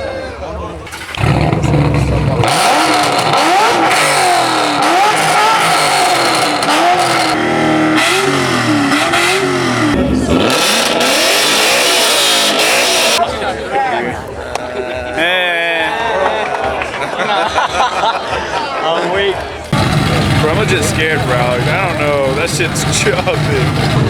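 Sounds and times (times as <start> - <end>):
car engine revving: 0.8 - 13.2, 19.7 - 24.0.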